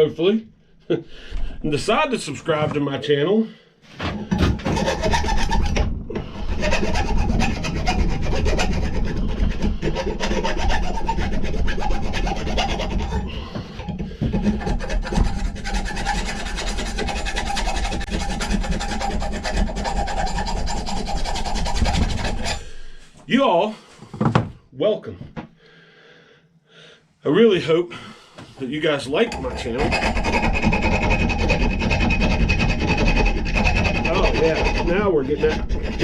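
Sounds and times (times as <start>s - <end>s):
file rasping on steel: 4.2s - 23.0s, 29.2s - 36.0s.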